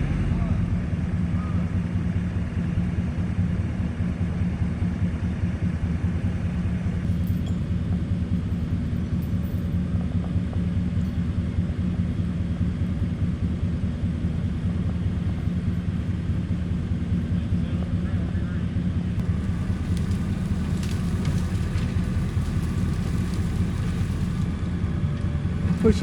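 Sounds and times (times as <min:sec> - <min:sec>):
vehicle engine droning: 0:00.0 - 0:26.0.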